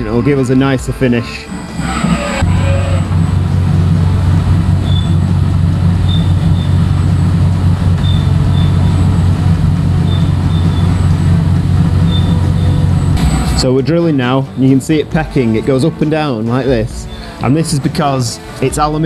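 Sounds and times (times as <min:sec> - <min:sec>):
high-pitched cutter whistles: 0:00.0 - 0:13.7
milling machine humming: 0:00.0 - 0:13.7.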